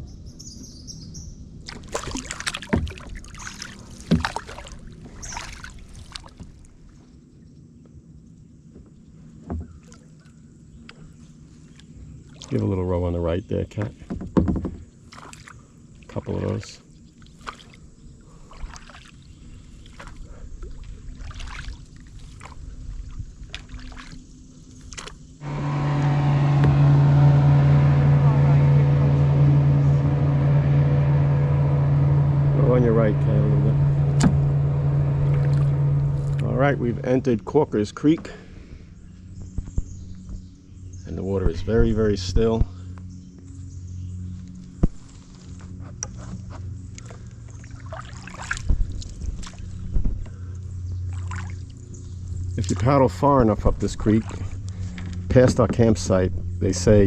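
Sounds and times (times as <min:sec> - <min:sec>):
kayak paddle splashing: 0:01.6 - 0:07.0, 0:11.0 - 0:12.7, 0:14.0 - 0:38.7, 0:46.7 - 0:57.0
loud engine drone: 0:25.4 - 0:39.2.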